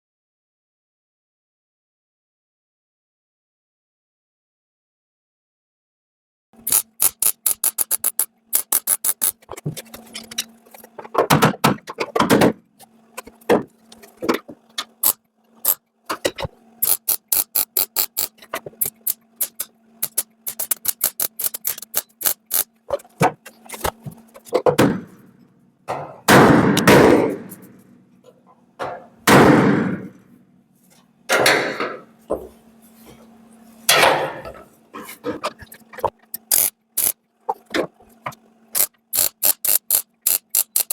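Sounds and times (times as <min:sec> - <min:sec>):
welder crackling arc bursts: 0:06.6 - 0:09.6, 0:16.8 - 0:22.7, 0:36.3 - 0:37.2, 0:38.8 - 0:40.9.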